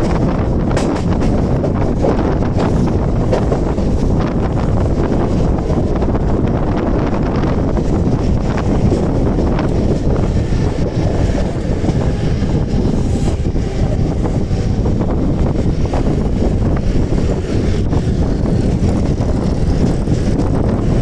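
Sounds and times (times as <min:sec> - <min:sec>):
train rumbling along track: 0:00.0 - 0:21.0
wind buffeting the microphone: 0:00.0 - 0:21.0.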